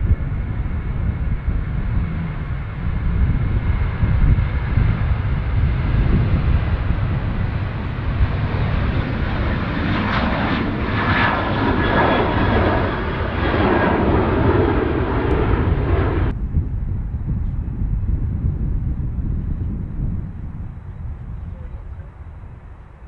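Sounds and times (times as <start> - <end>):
airliner engines whining: 0.0 - 23.0
wind rumble on microphone: 0.0 - 23.0.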